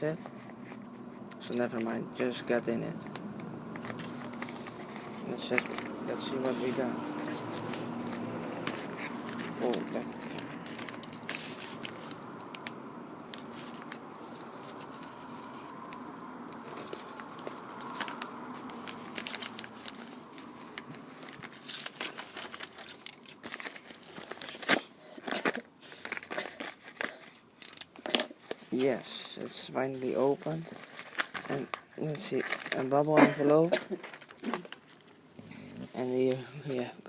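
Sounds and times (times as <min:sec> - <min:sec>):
plastic and paper crinkling: 0:00.0 - 0:36.9
bubble envelope tearing open: 0:16.6 - 0:28.8, 0:30.4 - 0:33.0.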